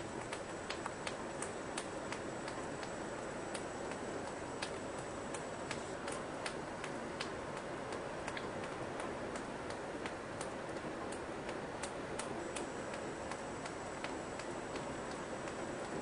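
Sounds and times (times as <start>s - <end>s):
rain hissing: 0.0s - 11.0s, 11.6s - 16.0s
raindrops ticking on a surface: 0.0s - 16.0s.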